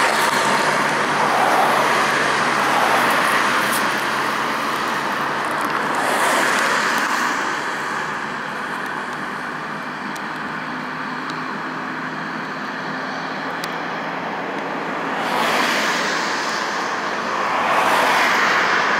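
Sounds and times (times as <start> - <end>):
bus diesel engine running: 0.0 - 15.2
road and tyre noise: 0.0 - 18.9.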